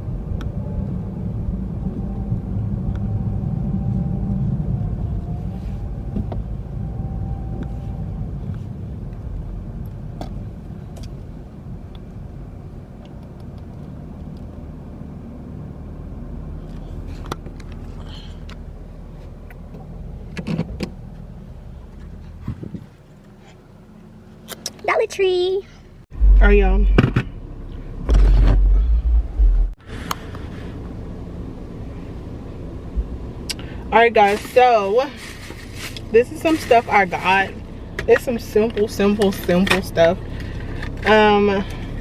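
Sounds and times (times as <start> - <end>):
car rumbling from inside: 0.0 - 42.0.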